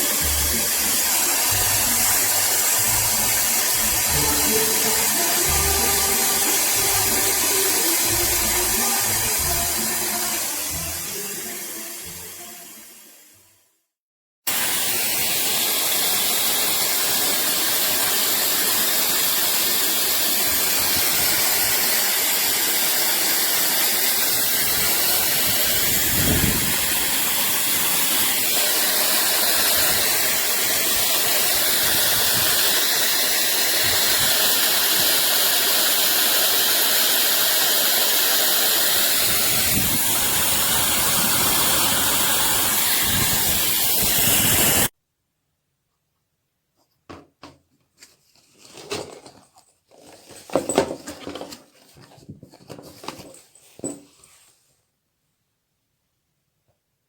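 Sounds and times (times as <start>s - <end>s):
hair dryer blowing: 0.0s - 13.4s, 14.5s - 44.9s.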